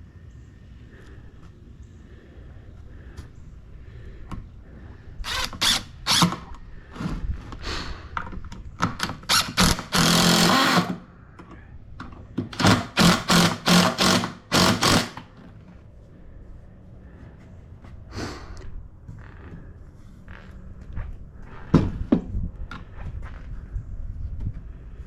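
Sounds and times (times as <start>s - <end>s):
power drill bursts: 5.3s - 6.4s, 9.2s - 11.0s, 12.5s - 15.3s.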